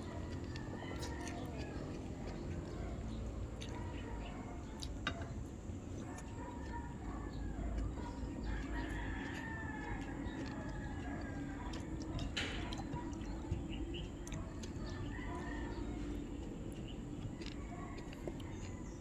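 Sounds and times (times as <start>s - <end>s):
rooster crowing: 0.0s - 2.4s, 8.4s - 12.2s, 14.8s - 16.3s
hens clucking: 0.0s - 18.9s.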